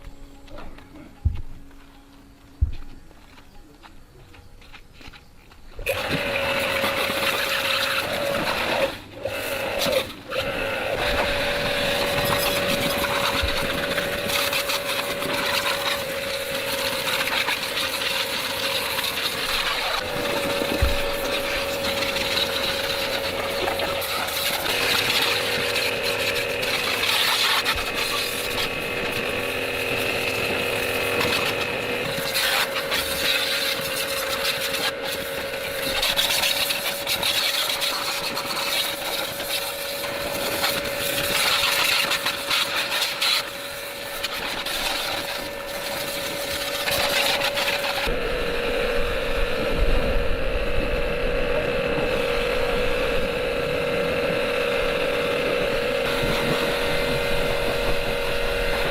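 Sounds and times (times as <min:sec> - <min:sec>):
small motorcycle engine running: 0:05.7 - 0:58.9
low rumble: 0:48.1 - 0:55.0.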